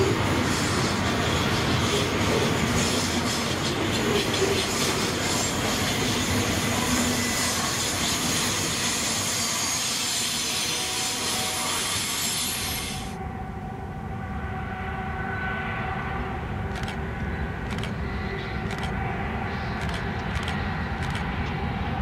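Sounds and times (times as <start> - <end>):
train rolling along rails: 0.0 - 22.0
high wheel squeal: 4.5 - 13.2.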